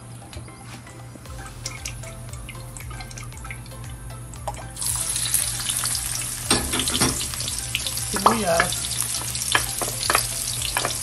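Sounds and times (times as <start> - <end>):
food sizzling in oil: 1.3 - 11.0
hot oil ticking and popping: 1.3 - 11.0.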